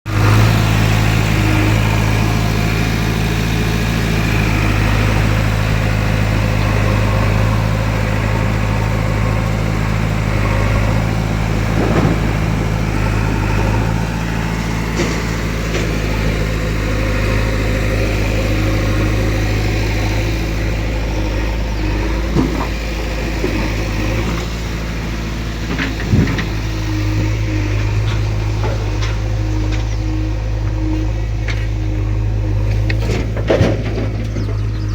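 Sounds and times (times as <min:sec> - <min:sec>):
heavy diesel engine running: 0:00.0 - 0:34.9
sharp knocks and clanks: 0:10.3 - 0:17.0, 0:21.4 - 0:30.0, 0:32.6 - 0:34.9.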